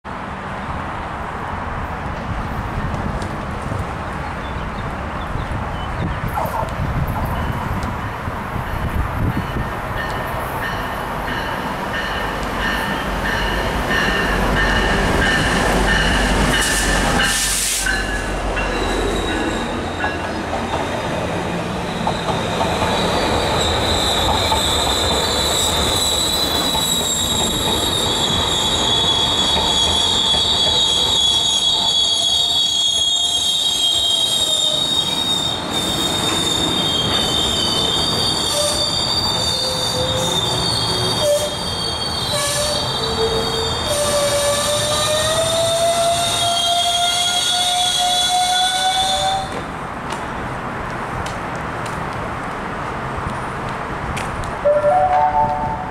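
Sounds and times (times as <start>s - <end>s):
train rumble and knocking: 0.1s - 55.9s
high steady train squeal: 4.2s - 49.8s.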